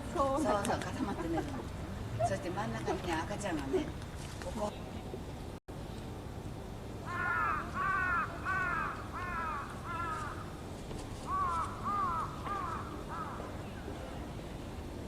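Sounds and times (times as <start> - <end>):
crow cawing: 7.0 - 10.6, 11.3 - 13.5.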